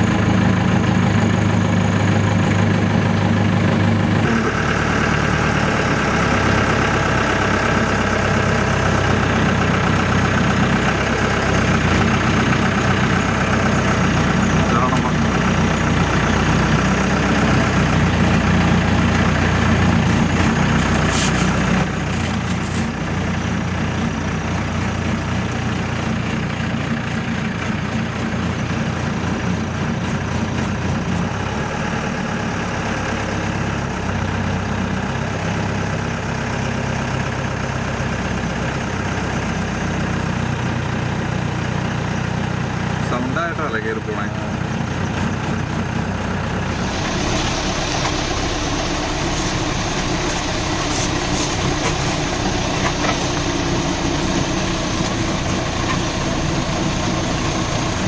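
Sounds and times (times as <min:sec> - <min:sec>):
jeep engine at low revs: 0:00.0 - 0:58.0.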